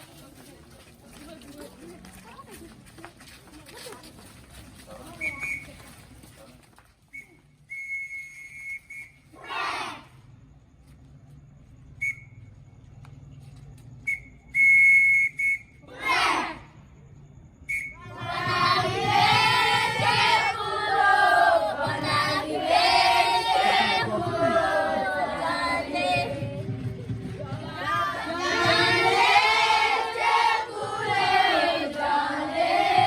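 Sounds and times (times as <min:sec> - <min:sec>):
whistle blasts: 0:05.1 - 0:05.8, 0:07.1 - 0:09.4, 0:11.9 - 0:12.7, 0:14.0 - 0:15.9, 0:17.5 - 0:18.2.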